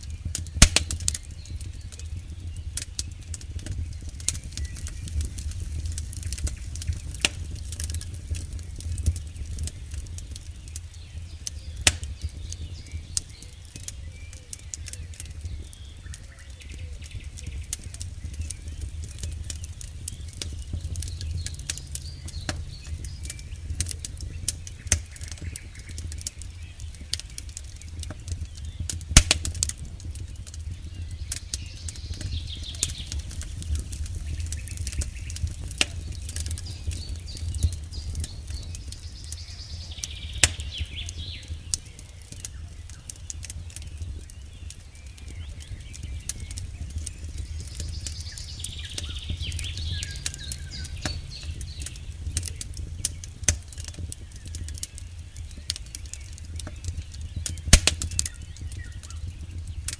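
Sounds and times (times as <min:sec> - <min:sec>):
campfire crackling: 0:00.0 - 0:59.9
low rumble: 0:17.0 - 0:29.1, 0:29.7 - 0:54.4.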